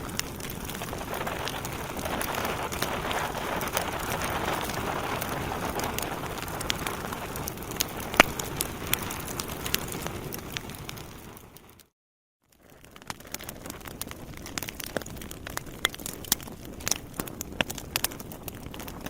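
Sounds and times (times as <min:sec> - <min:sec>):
hiss of flames: 0:00.0 - 0:11.8
fire crackling and popping: 0:00.0 - 0:11.9, 0:12.5 - 0:19.0.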